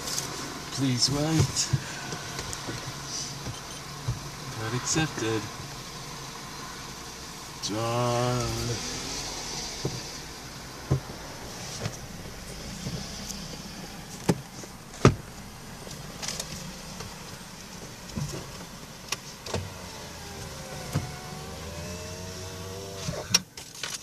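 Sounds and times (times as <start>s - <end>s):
steady low hum: 9.4s - 23.1s
wavering pitched whine: 19.8s - 23.2s.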